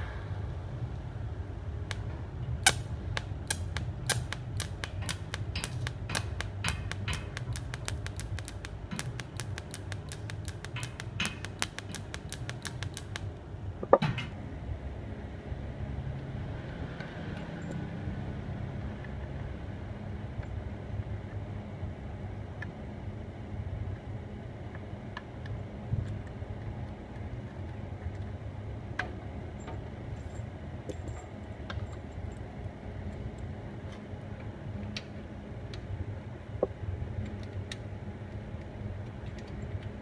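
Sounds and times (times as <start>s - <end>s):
welding machine humming: 1.8s - 13.4s
sharp irregular clicks: 2.6s - 14.0s.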